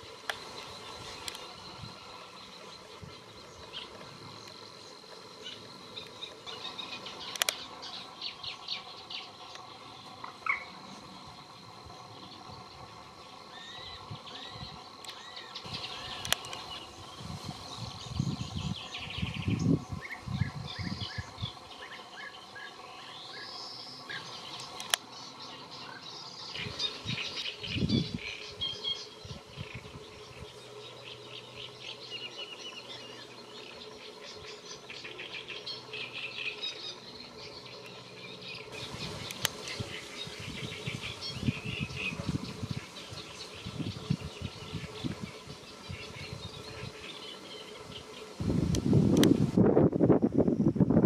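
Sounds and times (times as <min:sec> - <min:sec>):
wild birds chirping: 0:00.0 - 0:49.4
sharp clicks: 0:07.2 - 0:07.6, 0:16.2 - 0:16.6, 0:24.7 - 0:25.1, 0:39.2 - 0:39.6.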